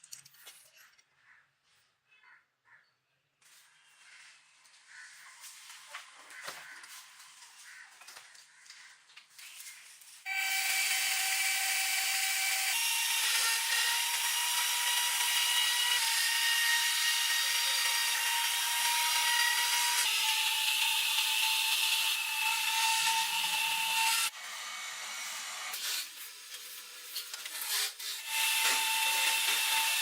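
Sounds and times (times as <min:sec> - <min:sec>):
power grinder whining on steel: 0:10.3 - 0:25.8, 0:27.5 - 0:30.0.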